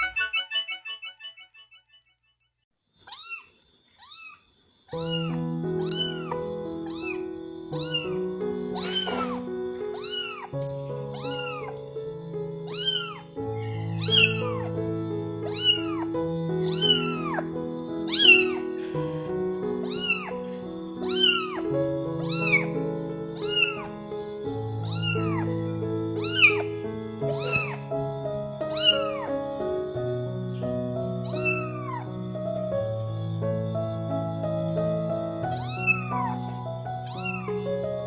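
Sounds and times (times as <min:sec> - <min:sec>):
kitten meowing: 0:03.0 - 0:11.9, 0:12.7 - 0:14.8, 0:15.4 - 0:17.5, 0:18.1 - 0:24.0, 0:24.8 - 0:28.0, 0:28.7 - 0:29.4, 0:31.2 - 0:32.2, 0:35.4 - 0:37.8
background music with sustained notes: 0:05.1 - 0:38.0.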